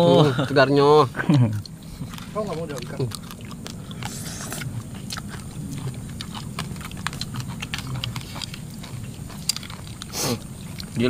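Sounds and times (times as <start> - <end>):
chewing and mouth smacking: 1.2 - 11.0
short hiss: 10.1 - 10.4.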